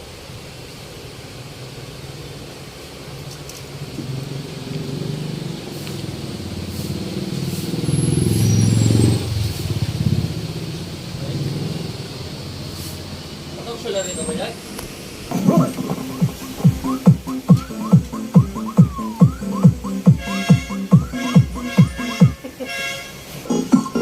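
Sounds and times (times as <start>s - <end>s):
deep subwoofer bass music: 15.3s - 22.4s.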